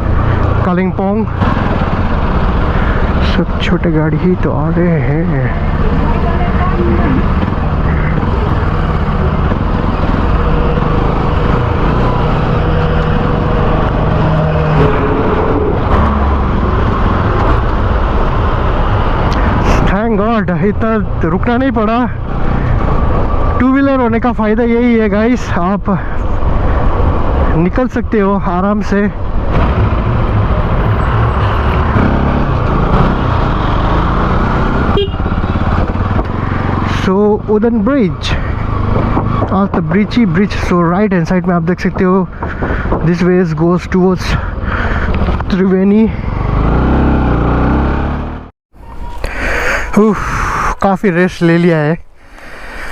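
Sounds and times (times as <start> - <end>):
motorcycle engine rumbling: 0.0 - 51.2
road and traffic noise: 0.0 - 52.9
motorcycle engine running: 32.0 - 36.9.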